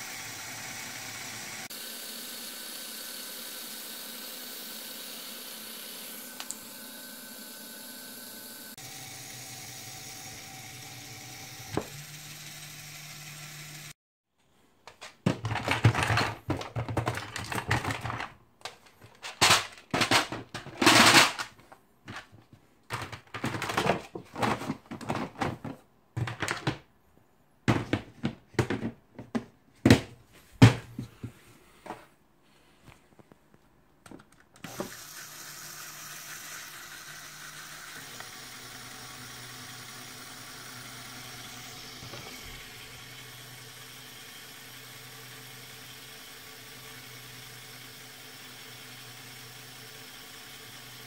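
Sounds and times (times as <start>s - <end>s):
small electric motor humming: 0.0s - 14.0s, 34.6s - 51.0s
plastic parts clattering: 14.9s - 26.9s, 27.7s - 31.3s.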